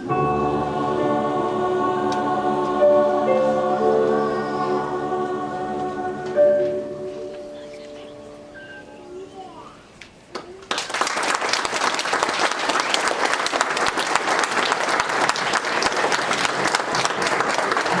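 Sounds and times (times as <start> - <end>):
audience applauding: 10.3 - 18.0.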